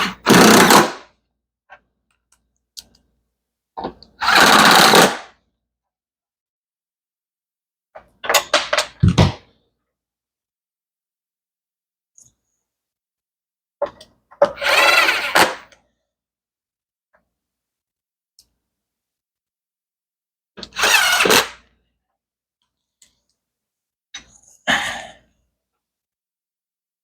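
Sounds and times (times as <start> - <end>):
cordless drill driving screws: 0.0 - 1.0, 4.2 - 5.3, 14.6 - 15.6, 20.7 - 21.5.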